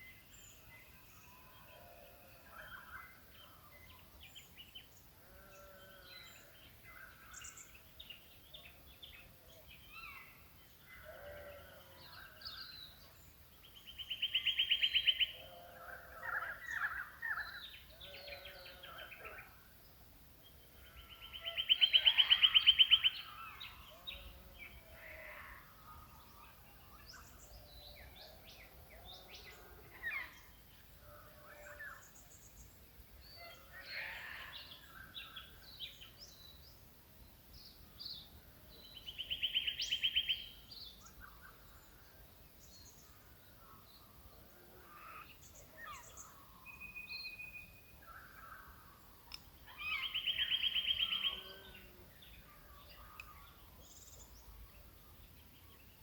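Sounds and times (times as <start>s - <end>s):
mixed birdsong: 0.0s - 56.0s.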